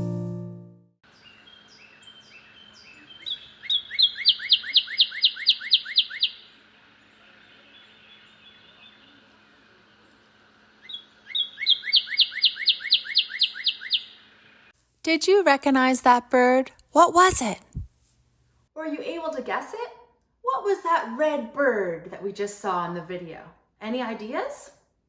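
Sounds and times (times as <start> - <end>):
cardinal whistling song: 2.3 - 6.4, 10.9 - 14.1.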